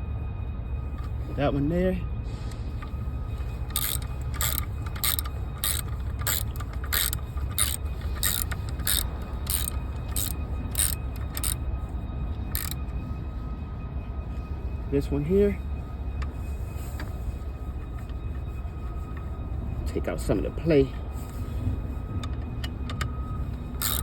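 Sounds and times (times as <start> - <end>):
ratchet wrench clicking: 3.7 - 11.6, 12.6 - 12.8, 23.8 - 24.0.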